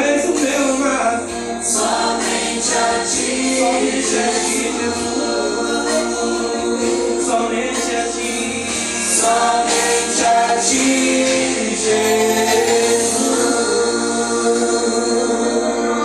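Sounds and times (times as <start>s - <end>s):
congregation singing gospel song: 0.0s - 16.0s
worship band playing: 0.0s - 16.0s.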